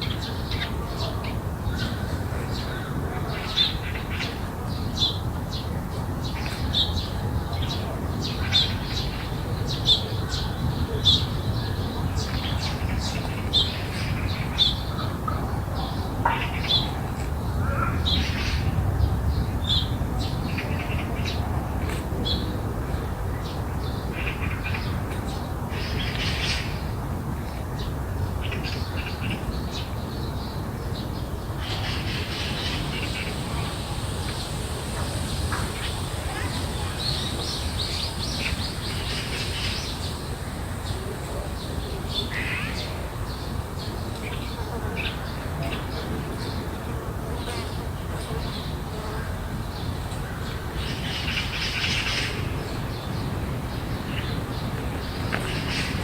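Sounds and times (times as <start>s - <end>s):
birds calling: 28.5s - 44.4s.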